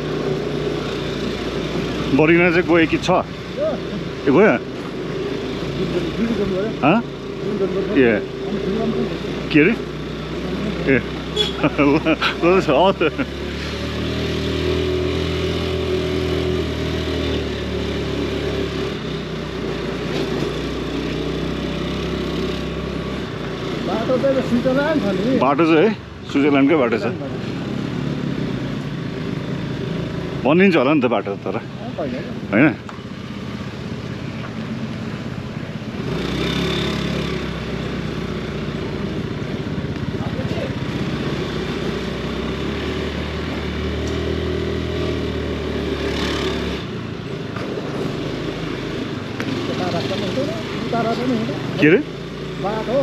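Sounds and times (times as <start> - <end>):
scooter engine running: 0.0 - 44.2, 44.9 - 53.0
road and wind noise: 0.0 - 53.0.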